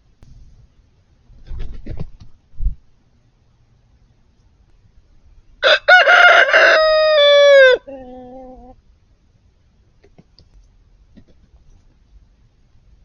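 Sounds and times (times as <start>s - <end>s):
rooster crowing: 5.6s - 8.7s.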